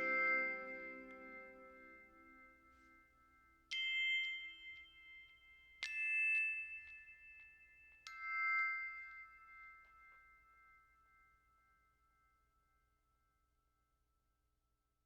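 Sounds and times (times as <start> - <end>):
bell-like chime notes: 0.0 - 2.7.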